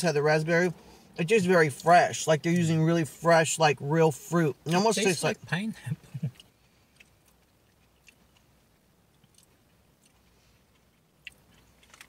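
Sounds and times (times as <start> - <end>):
mouth chewing clicks and smacks: 5.9 - 12.0.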